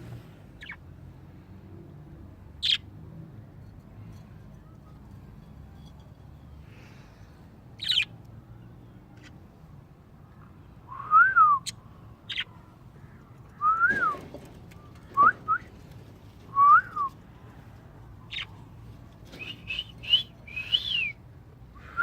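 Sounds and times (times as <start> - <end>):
bird whistling: 13.6 - 14.2, 19.4 - 21.2.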